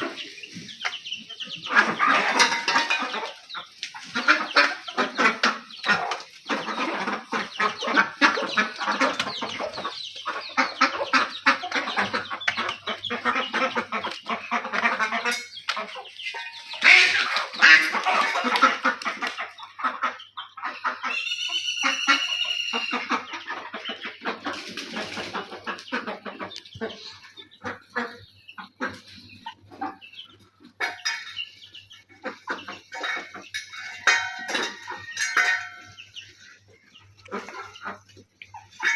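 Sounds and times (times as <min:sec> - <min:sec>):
chickens clucking: 0:00.0 - 0:38.9
high repeating bird call: 0:21.1 - 0:23.3.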